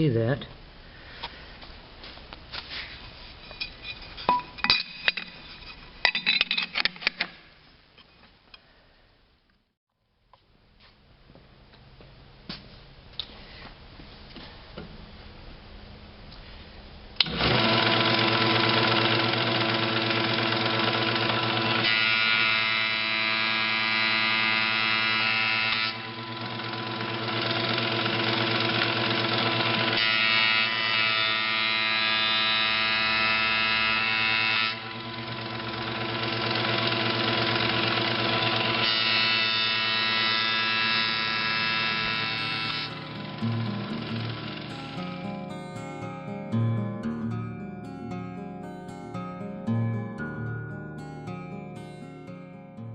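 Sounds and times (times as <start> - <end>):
planer cutting boards: 17.2 - 45.2
planer motor whine: 17.2 - 45.7.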